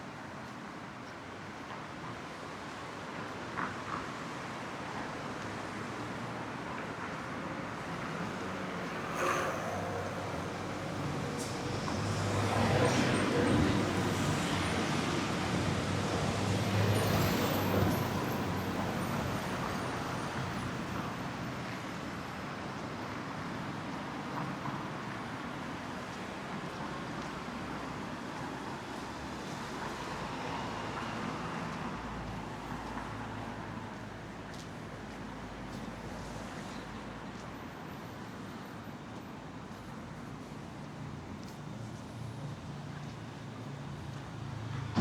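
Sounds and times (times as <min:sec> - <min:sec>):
steady traffic hum: 0:00.1 - 0:45.0
cars passing: 0:07.7 - 0:20.9.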